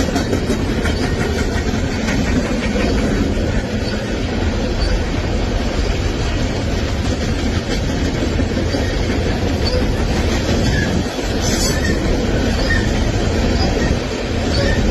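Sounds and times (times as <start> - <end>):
train wheels rumbling on track: 0.0 - 14.9.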